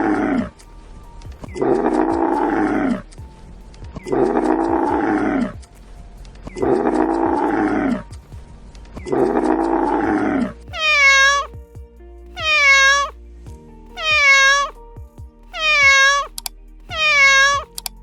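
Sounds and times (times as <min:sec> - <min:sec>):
animal calling: 0:10.7 - 0:11.5, 0:12.4 - 0:13.1, 0:14.0 - 0:14.7, 0:15.5 - 0:16.3, 0:16.9 - 0:17.7.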